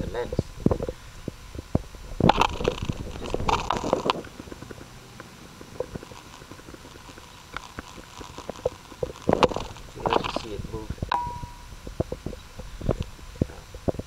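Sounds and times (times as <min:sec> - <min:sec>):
rapid clicking bursts: 0:02.2 - 0:10.6.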